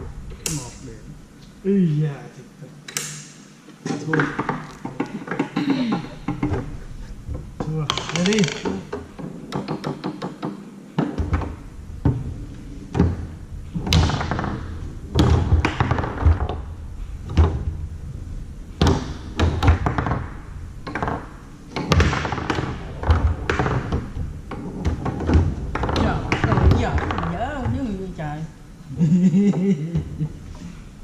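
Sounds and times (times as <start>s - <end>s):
foosball knocks and thuds: 3.9s - 12.3s, 12.9s - 17.9s, 18.8s - 28.1s.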